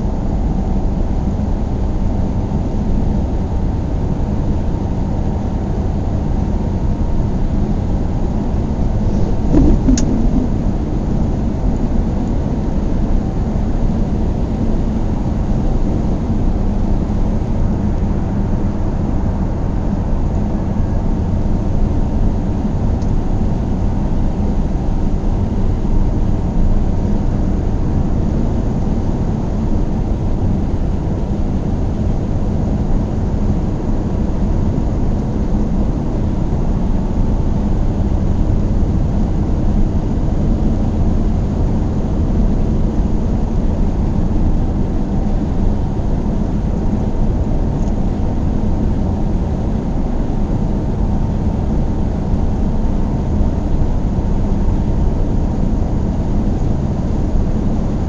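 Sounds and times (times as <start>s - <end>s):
car engine and road noise: 9.0s - 11.1s.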